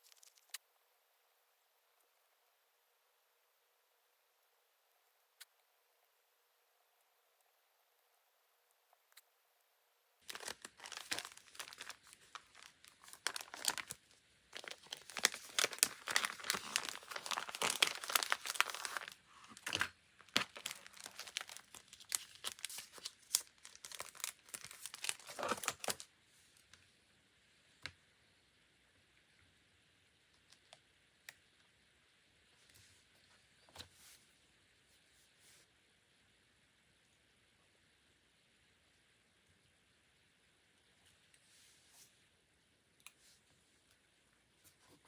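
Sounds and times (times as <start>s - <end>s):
paper crinkling and rustling: 10.2s - 26.1s.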